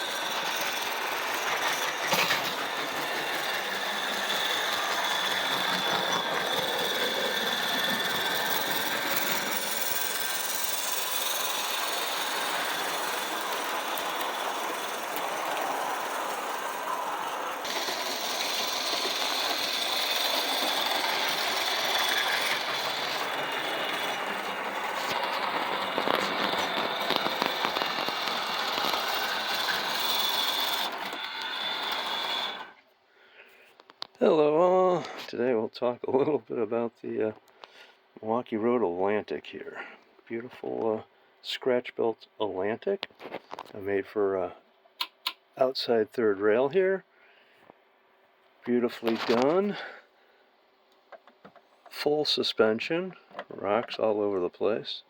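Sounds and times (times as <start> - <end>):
model train motor whine: 0.0 - 32.8
wheels clicking on rails: 0.0 - 32.8.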